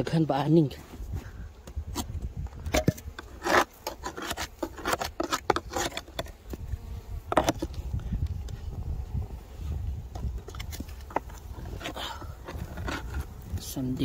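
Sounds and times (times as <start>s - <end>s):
scraping on wooden beehive: 0.7s - 14.0s.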